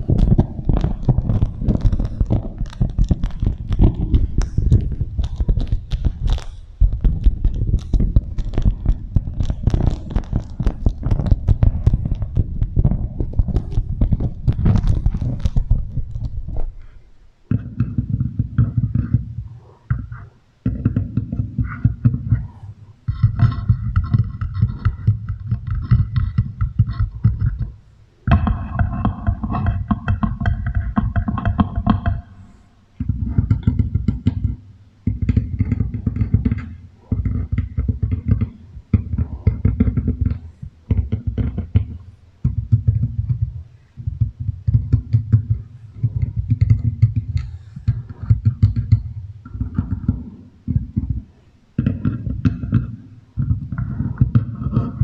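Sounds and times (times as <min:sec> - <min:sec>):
deep echoing wrap crackling: 0:00.0 - 0:42.2.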